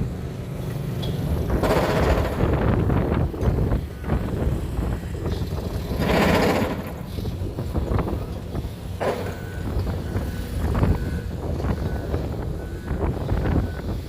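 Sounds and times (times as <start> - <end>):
heavy machinery rumbling: 0.0 - 14.0.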